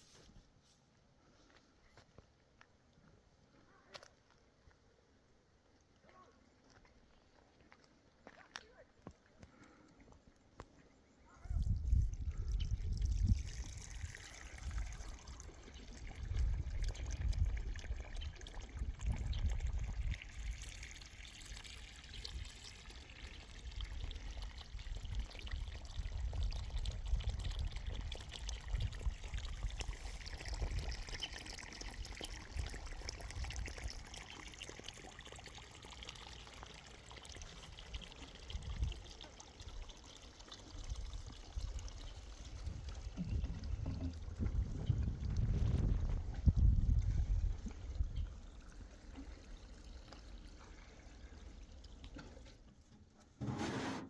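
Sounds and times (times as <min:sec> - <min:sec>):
water trickling: 0:11.3 - 0:52.9
wind gusting on microphone: 0:42.6 - 0:48.3.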